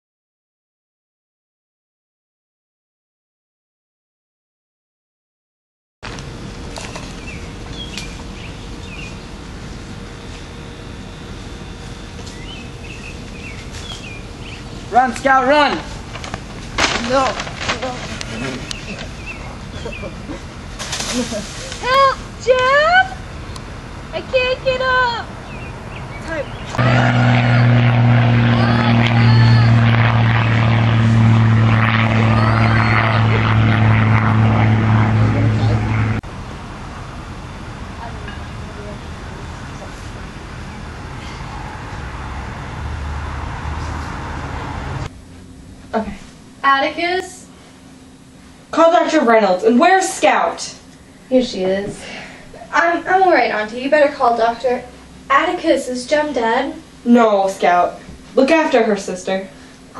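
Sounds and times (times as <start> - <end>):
rough noisy background: 6.0 - 59.9
low droning hum: 6.1 - 59.9
small birds chirping: 7.1 - 9.3, 12.3 - 14.9, 18.3 - 20.2, 25.4 - 26.8
low rumble: 26.0 - 39.0.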